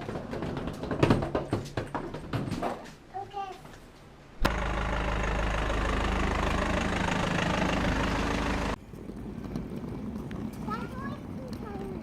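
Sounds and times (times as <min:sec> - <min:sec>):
car engine running: 0:04.4 - 0:08.8.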